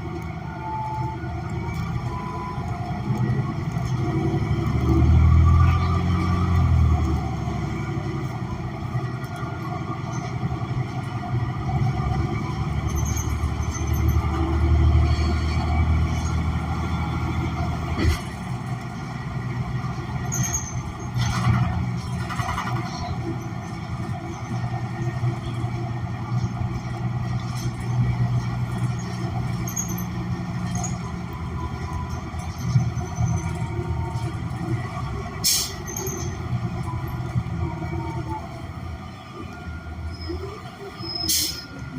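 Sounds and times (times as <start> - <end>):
bus engine humming: 0.0 - 41.9.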